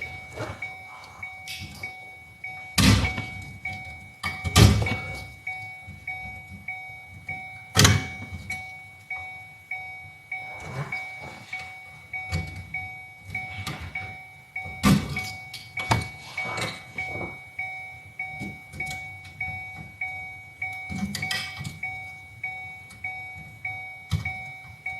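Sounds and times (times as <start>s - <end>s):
plastic and metal clunks: 2.8s - 5.3s, 7.8s - 8.6s.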